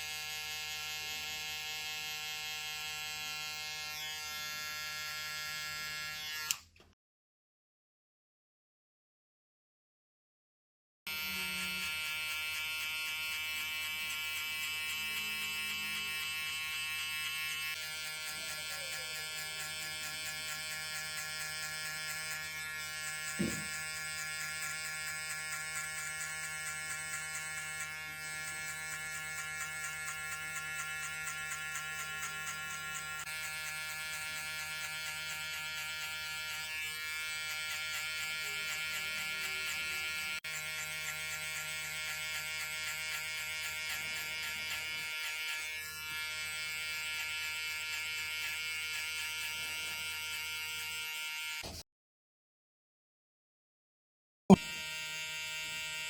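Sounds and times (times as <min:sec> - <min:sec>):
electric hair clippers buzzing: 0:00.0 - 0:06.8, 0:11.1 - 0:51.8, 0:54.5 - 0:56.0
brief knock: 0:23.4 - 0:23.7.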